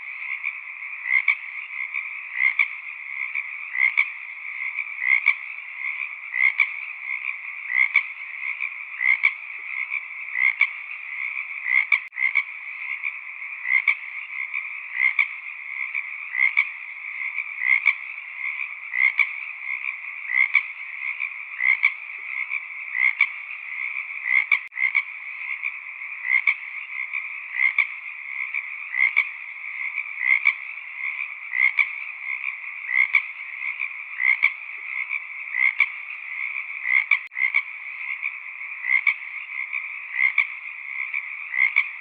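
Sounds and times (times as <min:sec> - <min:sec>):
frog chorus trilling: 0:00.0 - 0:42.0
individual frog calls: 0:00.0 - 0:42.0.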